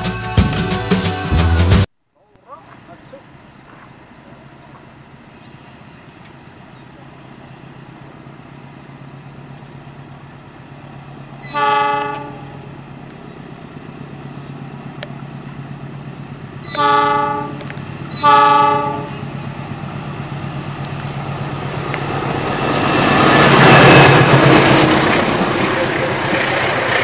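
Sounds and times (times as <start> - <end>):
diesel locomotive engine drone: 0.0 - 27.0
train horn blasts: 11.4 - 12.7, 16.6 - 19.4.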